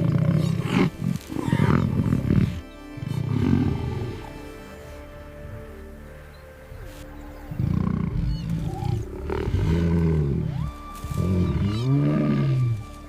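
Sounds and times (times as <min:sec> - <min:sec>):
lion roaring: 0:00.0 - 0:04.3, 0:07.4 - 0:12.8.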